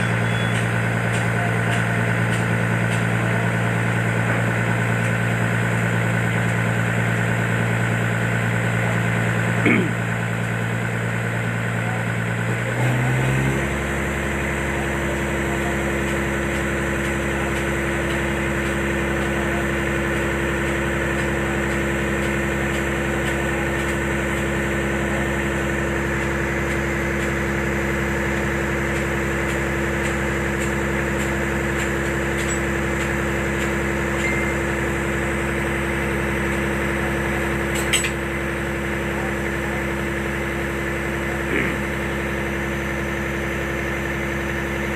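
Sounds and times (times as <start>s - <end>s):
truck engine running: 0.0s - 44.9s.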